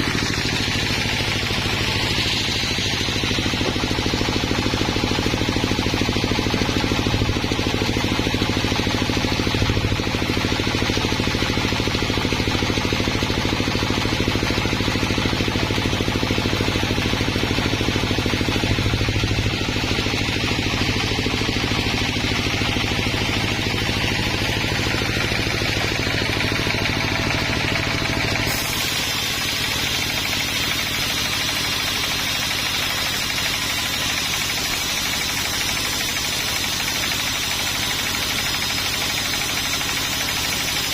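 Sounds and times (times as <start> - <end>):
machinery hiss: 0.0 - 5.3, 23.7 - 40.9
sawmill machinery engine drone: 0.0 - 40.9.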